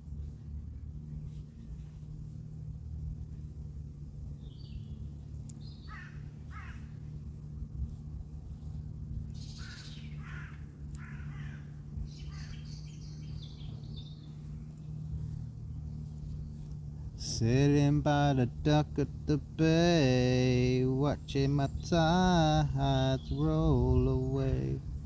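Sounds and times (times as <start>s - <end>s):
steady low hum: 0.0s - 25.0s
harsh caw-like bird calls: 5.6s - 7.3s, 9.3s - 14.5s.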